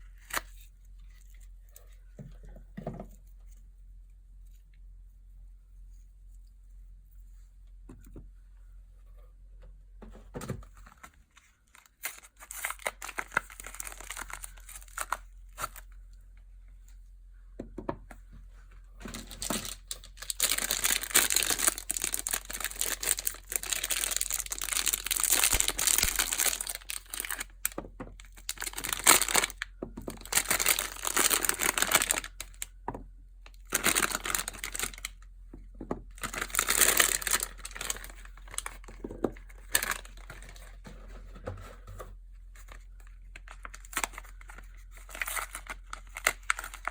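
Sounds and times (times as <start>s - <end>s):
wrappers crinkling and tearing: 11.7s - 15.9s, 19.1s - 32.7s, 33.5s - 35.2s, 36.1s - 38.9s, 39.5s - 40.7s, 42.5s - 46.9s.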